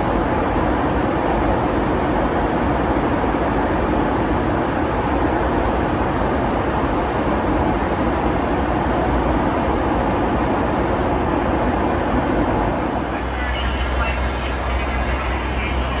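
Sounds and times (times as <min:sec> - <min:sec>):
airliner cabin engine rush: 0:00.0 - 0:16.0.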